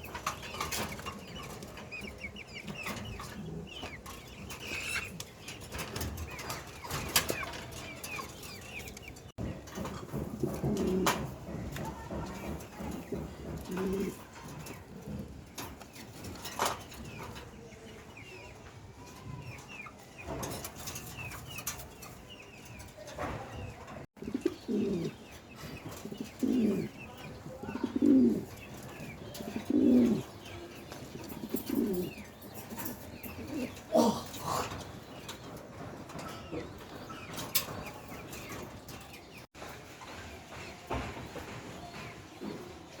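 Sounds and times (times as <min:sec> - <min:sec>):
pigeons cooing: 0:00.0 - 0:09.0, 0:09.6 - 0:17.4, 0:24.2 - 0:38.8
small birds chirping faintly: 0:00.0 - 0:43.0.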